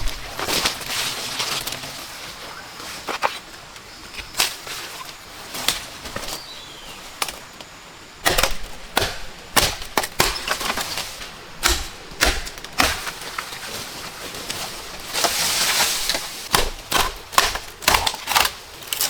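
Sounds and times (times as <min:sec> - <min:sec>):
blade striking wood: 0:08.2 - 0:13.6, 0:15.1 - 0:19.0.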